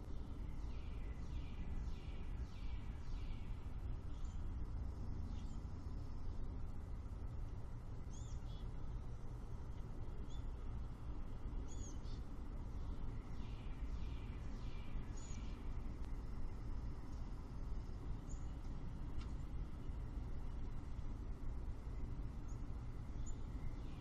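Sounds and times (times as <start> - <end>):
birds chirping: 0.0 - 4.7, 8.0 - 9.0, 11.6 - 15.9, 18.2 - 18.8, 21.9 - 24.0
steady low rumble: 0.0 - 24.0.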